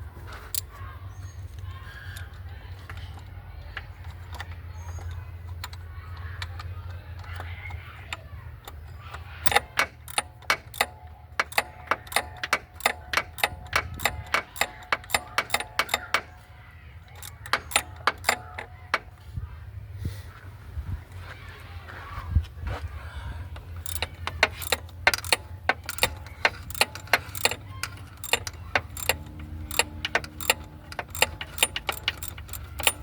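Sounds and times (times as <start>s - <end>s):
socket ratchet clicking: 4.0s - 19.2s, 23.6s - 33.0s.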